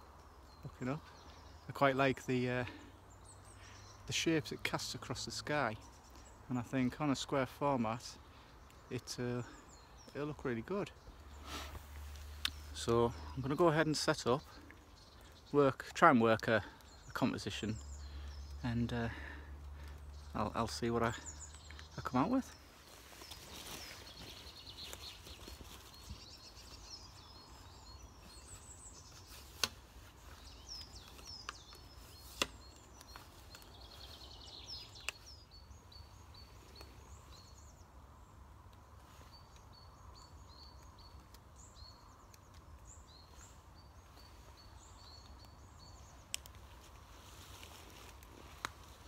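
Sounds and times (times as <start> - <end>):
small birds chirping: 0.0 - 49.0
sharp clicks: 46.3 - 46.6.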